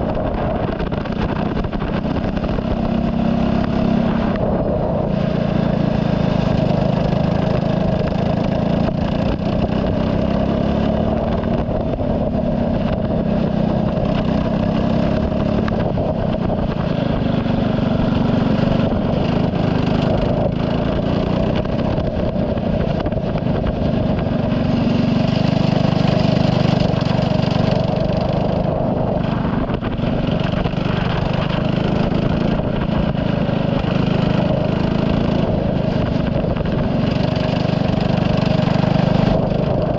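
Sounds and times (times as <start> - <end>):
race car engine at speed: 0.0 - 39.9.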